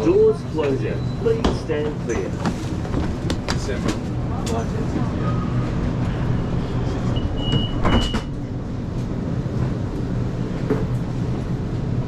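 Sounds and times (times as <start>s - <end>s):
low hum of stationary train: 0.0s - 12.0s
train doors knocking shut: 7.4s - 8.4s.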